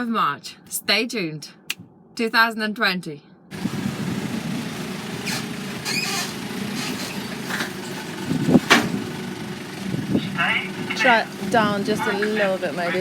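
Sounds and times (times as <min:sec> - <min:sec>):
engine idling: 0:03.5 - 0:13.0
loud metallic clunk: 0:08.6 - 0:09.1.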